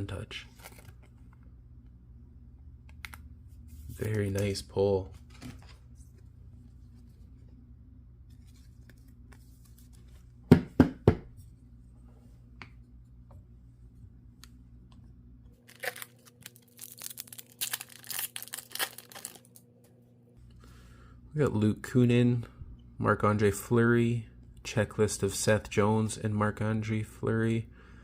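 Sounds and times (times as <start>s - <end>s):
foil wrapper tearing and crinkling: 15.6s - 19.6s.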